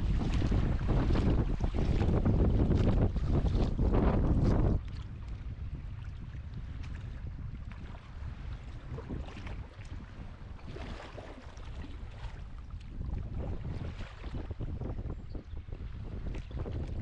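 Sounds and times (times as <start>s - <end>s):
paddle water splashes: 0.0s - 17.0s
wind rumbling on microphone: 0.0s - 17.0s.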